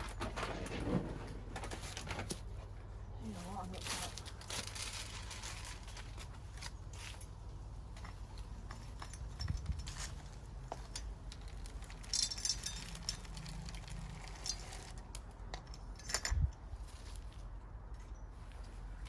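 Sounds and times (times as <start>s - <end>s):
rustling: 0.0s - 15.3s.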